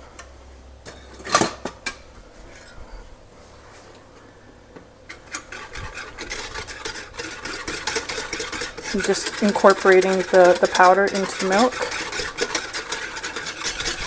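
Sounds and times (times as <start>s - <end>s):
whisk clinking on pan: 5.1s - 14.0s
whisk scraping in saucepan: 5.1s - 14.0s.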